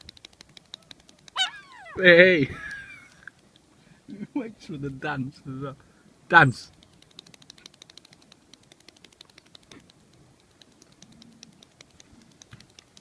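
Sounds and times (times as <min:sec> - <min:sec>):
seagull's feet pattering on ground: 0:00.3 - 0:03.3.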